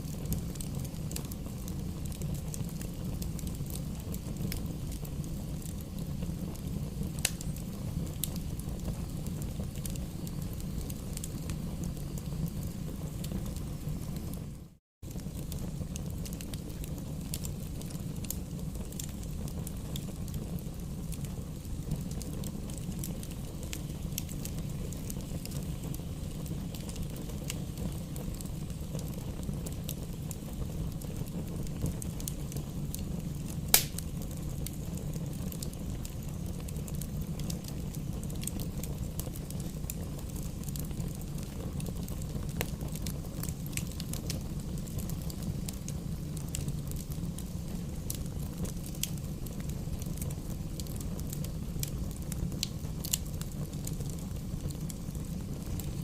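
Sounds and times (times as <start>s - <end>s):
campfire crackling and popping: 0.0s - 56.0s
loud sharp pop of fire: 33.7s - 34.3s.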